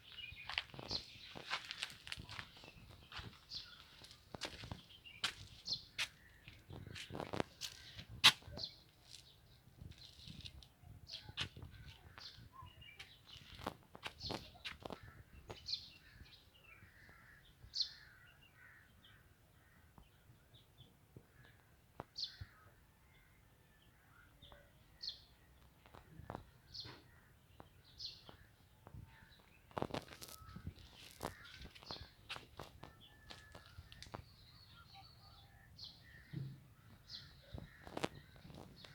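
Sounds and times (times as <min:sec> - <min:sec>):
birds calling: 0:00.0 - 0:09.3, 0:25.9 - 0:38.9.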